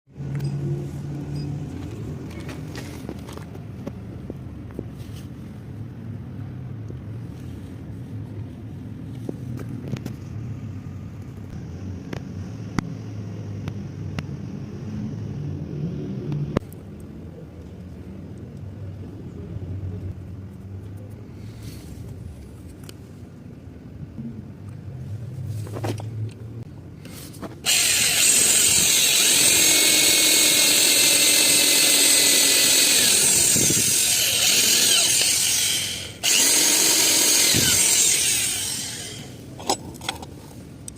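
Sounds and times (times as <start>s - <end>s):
power tool running: 27.6s - 39.4s.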